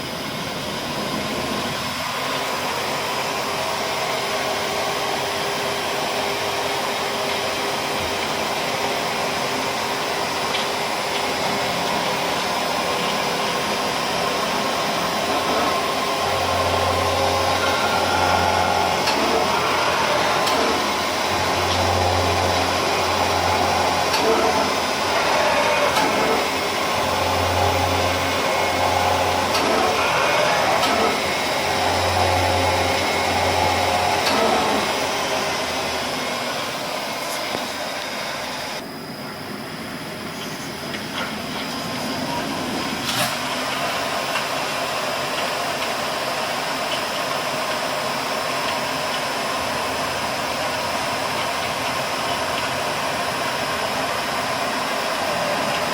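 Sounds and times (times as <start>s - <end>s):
cnc mill cutting noise: 0.0s - 55.9s.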